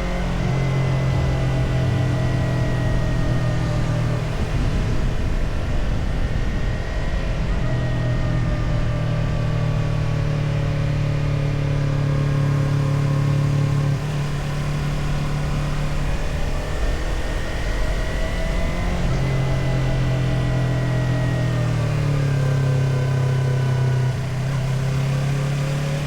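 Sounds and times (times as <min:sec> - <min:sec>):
wind rushing over microphone: 0:00.0 - 0:09.3
motorcycle engine running: 0:00.0 - 0:26.0.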